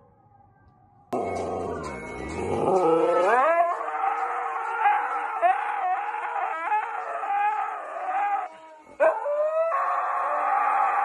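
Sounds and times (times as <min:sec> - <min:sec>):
dogs howling: 0:02.4 - 0:11.0.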